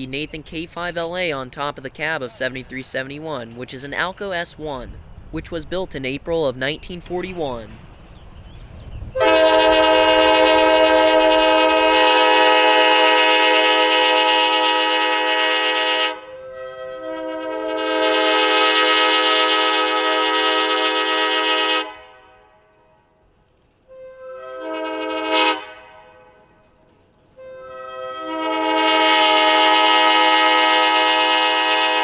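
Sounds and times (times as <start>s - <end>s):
locomotive air horn blasts: 9.2s - 22.7s, 23.9s - 26.5s, 27.4s - 32.0s.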